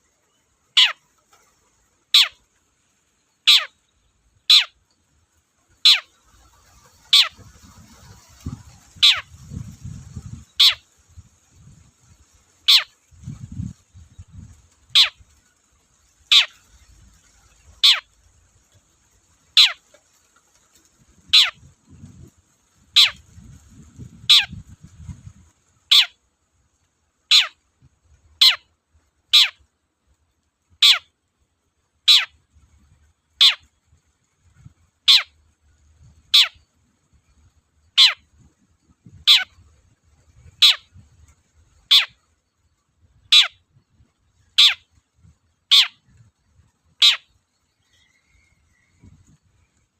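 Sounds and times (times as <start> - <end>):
shrike calling: 0.7 - 2.5, 3.3 - 3.8, 4.4 - 4.8, 5.7 - 10.9, 12.6 - 13.5, 14.1 - 15.6, 16.2 - 18.7, 19.6 - 19.9, 21.2 - 21.7, 22.9 - 23.2, 24.1 - 24.6, 25.9 - 26.2, 27.3 - 27.6, 28.4 - 28.7, 29.3 - 29.6, 30.8 - 31.1, 32.1 - 32.4, 33.4 - 33.7, 34.6 - 35.4, 36.1 - 36.7, 37.8 - 41.1, 41.7 - 42.5, 43.2 - 46.3, 46.9 - 49.5.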